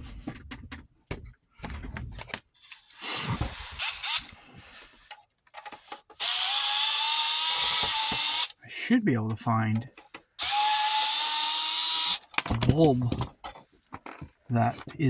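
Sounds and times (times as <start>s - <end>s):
parts being handled: 0.0s - 6.3s, 9.3s - 10.6s, 12.1s - 15.0s
power drill whining: 2.6s - 4.7s, 6.2s - 8.5s, 10.4s - 12.2s.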